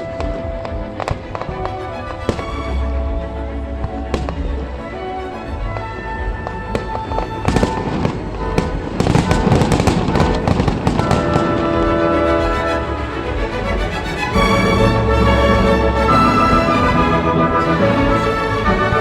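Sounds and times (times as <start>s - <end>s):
music: 0.0s - 19.0s
fireworks bangs and crackling: 6.7s - 12.0s.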